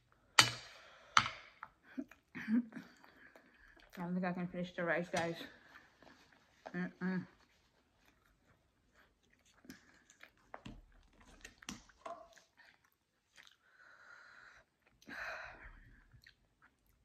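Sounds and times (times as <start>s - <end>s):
person chewing: 7.4s - 13.8s, 16.0s - 17.0s.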